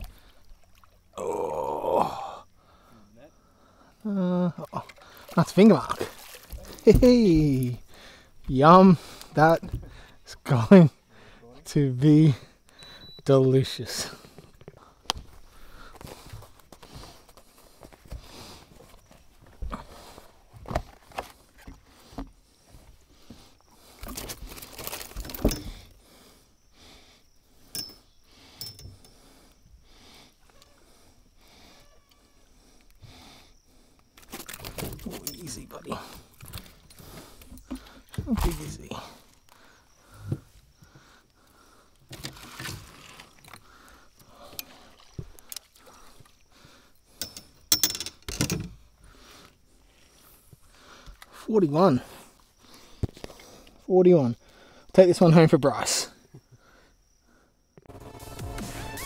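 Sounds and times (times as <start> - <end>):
knocks clicks and rattles in boat: 47.2 - 48.8.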